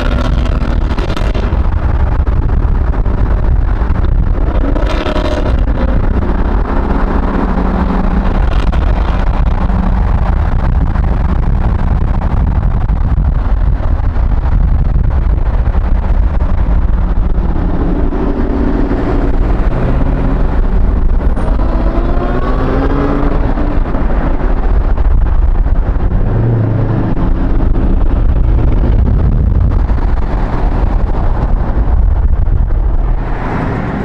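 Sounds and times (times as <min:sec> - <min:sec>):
engine revving: 0:00.0 - 0:01.7, 0:04.0 - 0:10.8, 0:17.4 - 0:25.0
car engines rumbling: 0:00.0 - 0:34.0.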